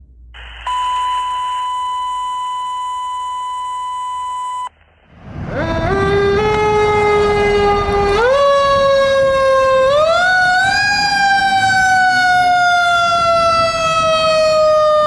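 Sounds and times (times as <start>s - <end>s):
electronic beep tone: 0.6s - 4.7s
fire truck siren winding up: 0.6s - 4.7s, 5.6s - 15.0s
low engine rumble: 4.6s - 15.0s.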